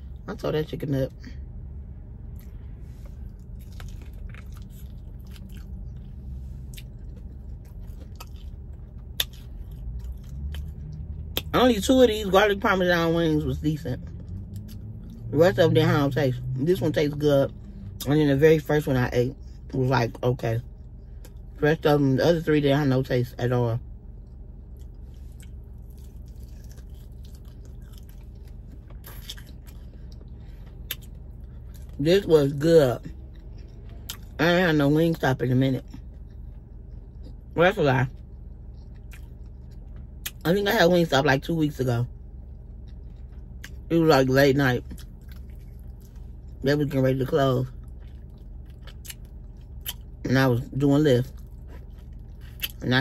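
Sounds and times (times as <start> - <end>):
low steady hum: 0.0 - 53.0
person chewing: 2.3 - 11.5, 14.0 - 15.3, 24.2 - 32.0, 33.0 - 34.4, 35.8 - 40.4, 42.4 - 43.9, 44.8 - 46.6, 47.7 - 50.2, 51.2 - 52.8.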